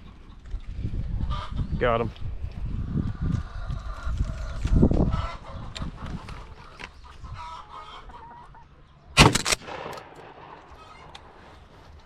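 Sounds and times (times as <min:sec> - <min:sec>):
hens clucking: 0:02.8 - 0:08.9.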